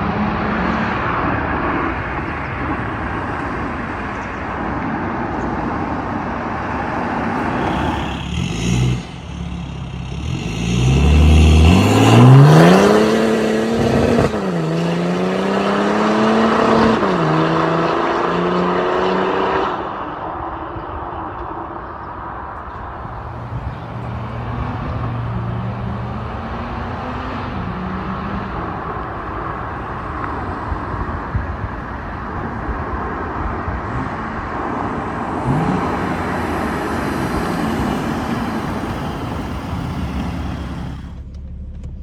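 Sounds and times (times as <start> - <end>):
diesel car accelerating hard: 0.0 - 42.0.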